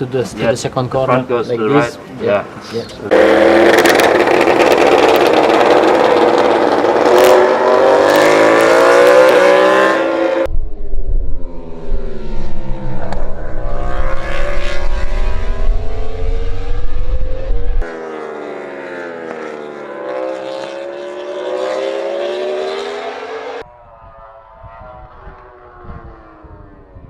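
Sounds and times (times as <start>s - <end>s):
distant engine: 1.1s - 27.0s
racing engine: 3.0s - 27.0s
heavy low rumble: 10.5s - 17.9s.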